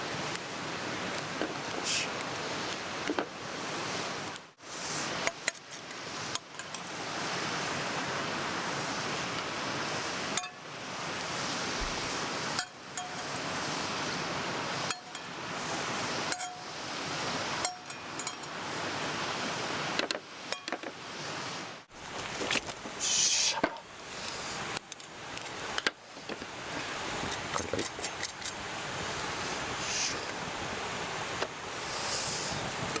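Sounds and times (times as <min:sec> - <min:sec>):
mountain stream rushing: 0:00.0 - 0:33.0
utensils clinking: 0:12.6 - 0:13.5, 0:16.3 - 0:16.7, 0:17.6 - 0:18.5.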